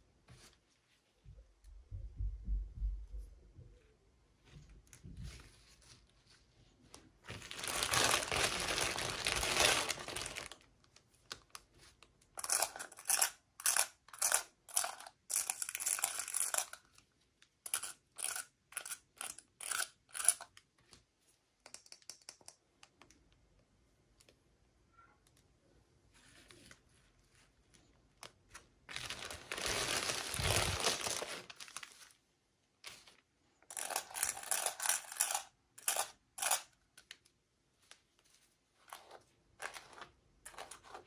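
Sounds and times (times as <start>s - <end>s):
packaging crinkling: 7.3s - 10.7s, 28.9s - 32.2s
packaging tearing: 7.4s - 10.6s, 28.9s - 32.0s.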